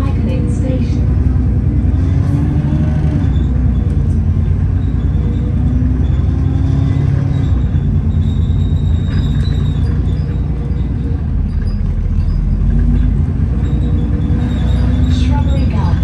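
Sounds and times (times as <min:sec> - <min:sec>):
bus engine rumble: 0:00.0 - 0:16.0.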